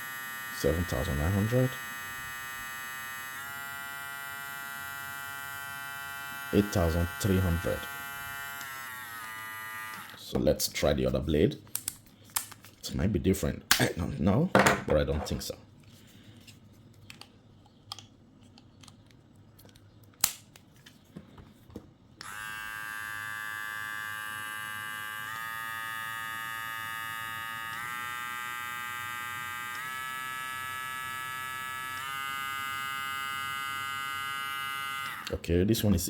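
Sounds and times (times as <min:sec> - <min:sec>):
hair clipper motor humming: 0:00.0 - 0:10.2, 0:22.2 - 0:35.4.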